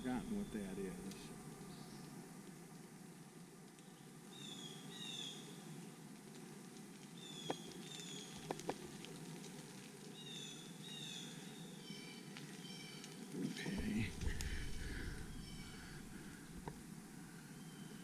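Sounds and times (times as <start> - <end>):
songbird whistling: 15.2 - 16.2.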